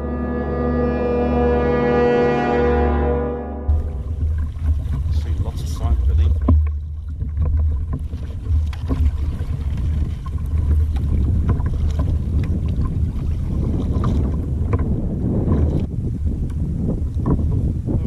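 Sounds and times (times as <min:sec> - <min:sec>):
water against hull: 0:00.8 - 0:18.0
wind rumble on microphone: 0:03.7 - 0:18.0.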